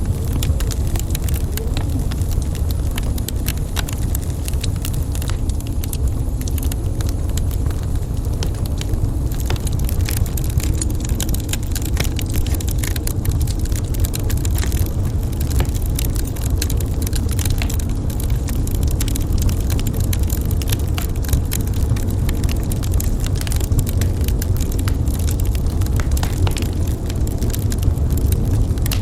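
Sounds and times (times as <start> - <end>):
crackles and pops of burning wood: 0.0 - 29.0
fire low rumble: 0.0 - 29.0.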